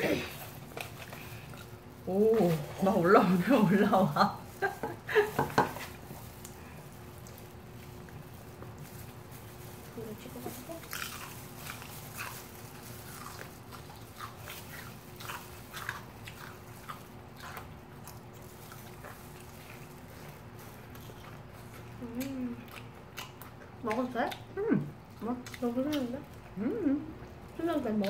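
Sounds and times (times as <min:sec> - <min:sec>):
crunching fried chicken: 0:04.2 - 0:26.5.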